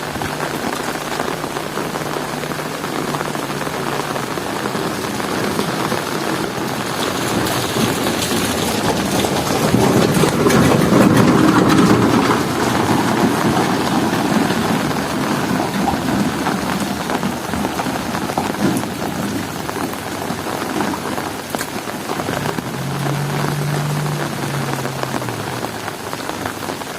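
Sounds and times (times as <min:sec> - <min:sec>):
heavy rain pattering: 0:00.0 - 0:26.9
water drips: 0:00.0 - 0:26.9
low rumble: 0:22.3 - 0:26.6.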